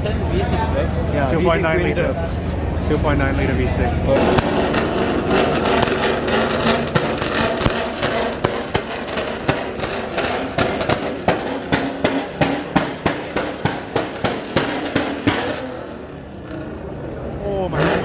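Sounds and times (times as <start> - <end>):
car engine running: 3.8 - 17.3.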